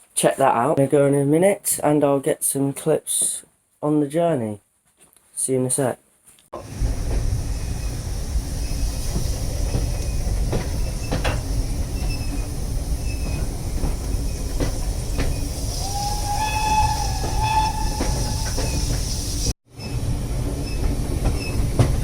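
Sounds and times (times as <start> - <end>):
train carriage rumbling on track: 6.6 - 22.0
pitched wheel squeal: 10.8 - 19.5.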